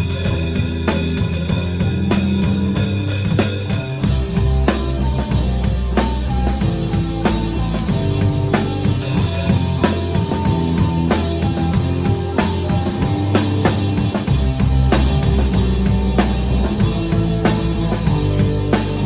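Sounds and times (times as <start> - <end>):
bass drum and snare hits: 0.0 - 19.0
live band playing: 0.0 - 19.0.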